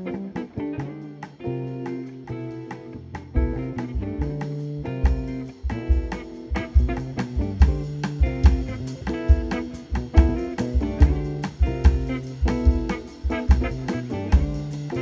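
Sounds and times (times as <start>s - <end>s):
drum kit: 0.0s - 15.0s
electric guitar chords: 0.0s - 15.0s
walking bass line: 0.0s - 15.0s.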